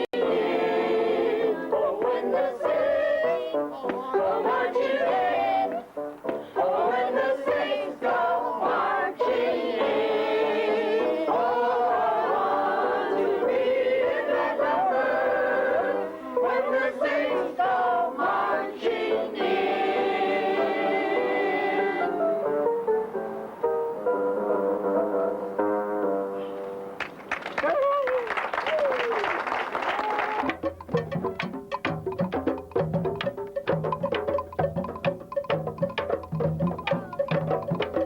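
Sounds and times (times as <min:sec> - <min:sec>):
choir singing: 0:00.0 - 0:22.8.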